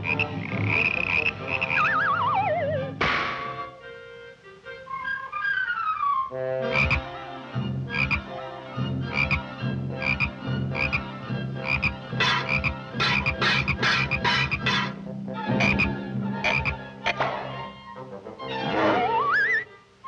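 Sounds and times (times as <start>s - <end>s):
falling pitch slide: 1.8s - 3.0s.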